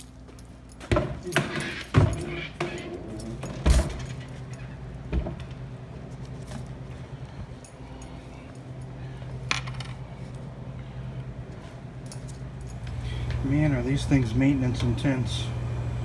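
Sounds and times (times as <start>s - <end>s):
metal knocks and clinks: 0.0s - 5.6s, 6.3s - 10.4s, 12.0s - 12.8s
low hum of equipment: 0.0s - 16.0s.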